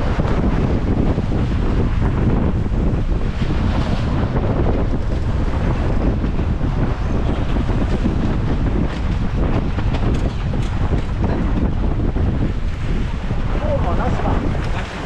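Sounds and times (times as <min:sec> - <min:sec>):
waves washing: 0:00.0 - 0:15.0
wind buffeting microphone: 0:00.0 - 0:15.0.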